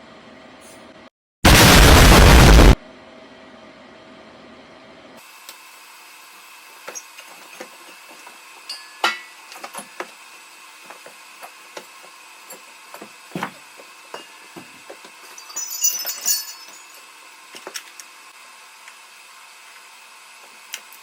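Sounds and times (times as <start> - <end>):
tools and metal parts knocking: 12.5 - 17.1.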